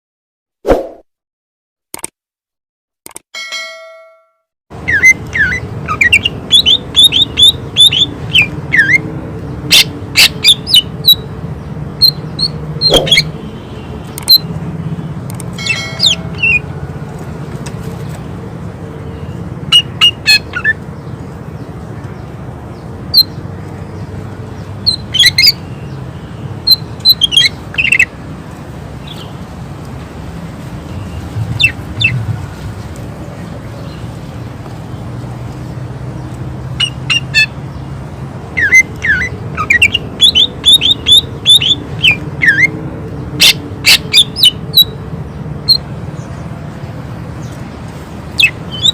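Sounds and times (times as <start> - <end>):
bird whistling short sharp notes: 12.8 - 13.3.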